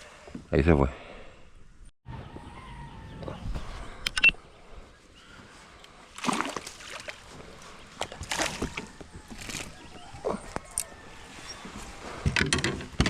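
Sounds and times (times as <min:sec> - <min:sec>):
water splashing and sloshing: 0:05.5 - 0:10.6.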